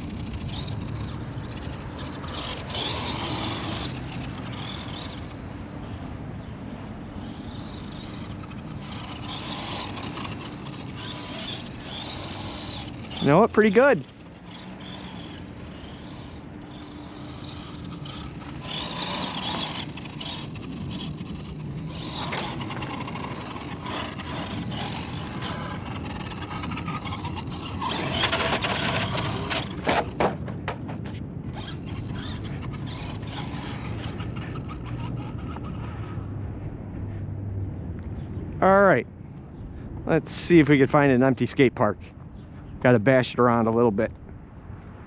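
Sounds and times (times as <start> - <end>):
electric motor whining: 0.0 - 30.2
drivetrain and tyre noise: 0.0 - 45.0.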